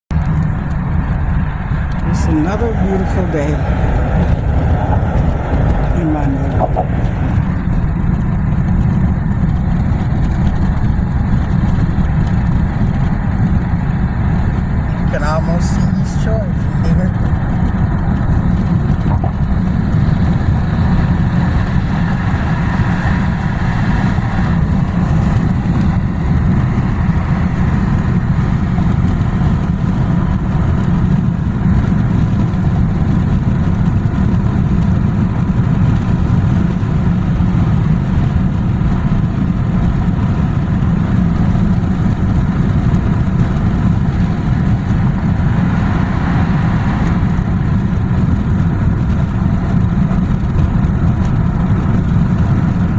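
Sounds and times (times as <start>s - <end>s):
truck engine rumble: 0.0s - 52.9s
road noise: 0.1s - 52.9s.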